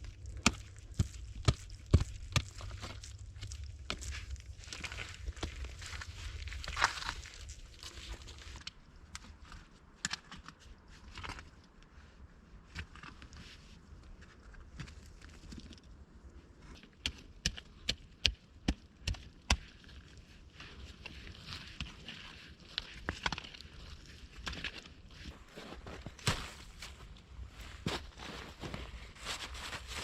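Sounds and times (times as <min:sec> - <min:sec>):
rustling: 0:20.6 - 0:30.0.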